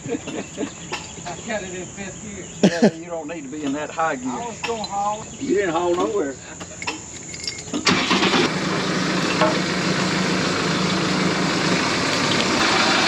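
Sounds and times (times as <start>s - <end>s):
tractor engine running: 6.6s - 13.0s.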